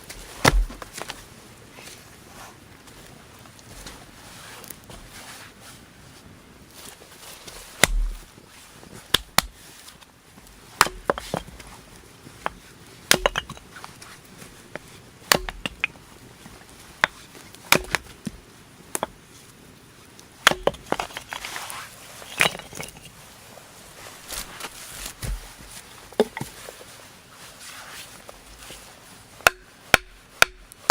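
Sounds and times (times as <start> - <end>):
wood chopping blows: 0.4 - 0.9, 7.8 - 8.2, 10.8 - 11.2, 15.3 - 15.9, 17.7 - 18.1.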